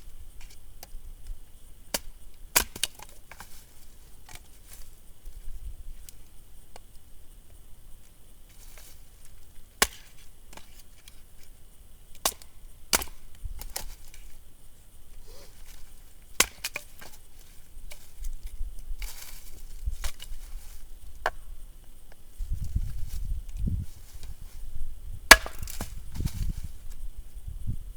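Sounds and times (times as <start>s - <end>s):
axe striking firewood: 1.9s - 3.1s, 9.8s - 10.6s, 12.2s - 14.0s, 16.4s - 17.2s, 21.2s - 21.5s, 25.3s - 26.6s
wood cracking as it splits: 1.9s - 3.4s, 12.2s - 14.2s, 16.4s - 17.2s, 25.3s - 26.4s.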